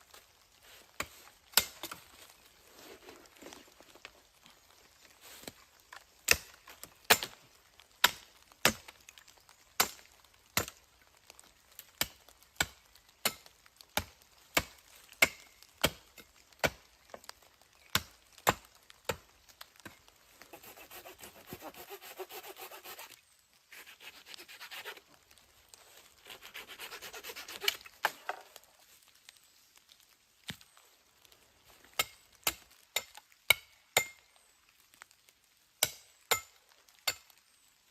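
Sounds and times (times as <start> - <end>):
sawing wood: 20.4 - 25.0, 26.2 - 28.2.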